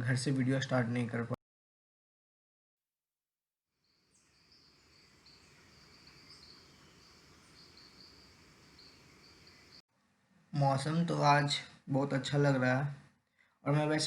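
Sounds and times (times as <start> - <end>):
insect chirring: 3.8 - 9.8
light hiss: 4.1 - 9.8.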